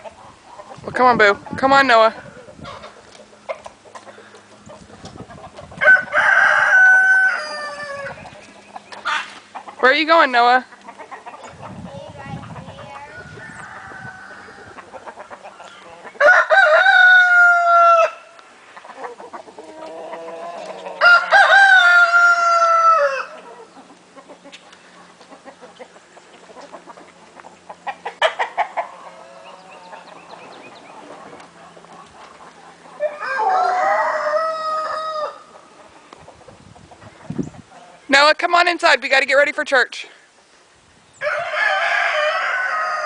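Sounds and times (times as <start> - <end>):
hens clucking softly: 1.4 - 5.8, 10.7 - 16.2, 18.6 - 21.0, 23.3 - 33.2, 34.2 - 38.0
roosters crowing: 2.2 - 9.8, 12.8 - 24.6, 25.3 - 38.1, 41.1 - 43.0.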